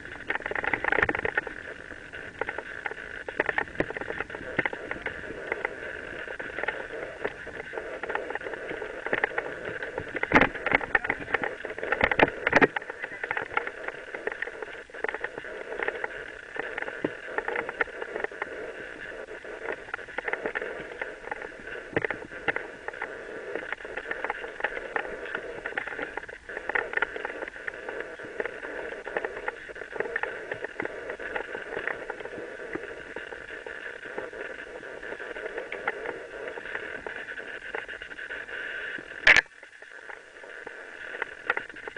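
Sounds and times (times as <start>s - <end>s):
bike rattling over rough ground: 0.0s - 18.4s.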